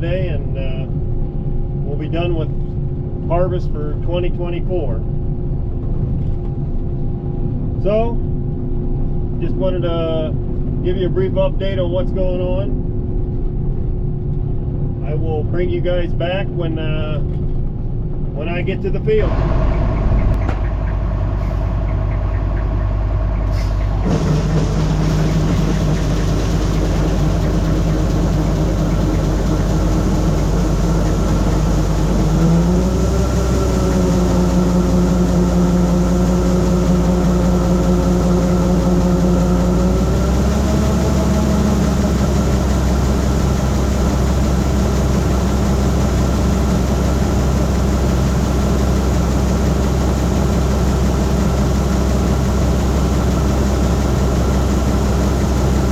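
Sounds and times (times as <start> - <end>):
combine diesel engine running: 18.2 - 55.9.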